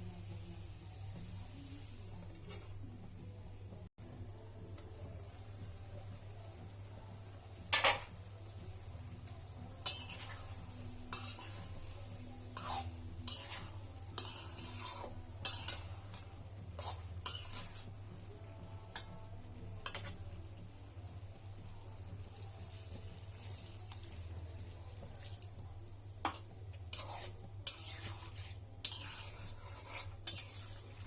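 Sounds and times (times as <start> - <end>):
light sizzling: 0.0 - 31.0
utensil scraping a pan: 9.7 - 18.0, 19.8 - 20.2, 26.9 - 31.0.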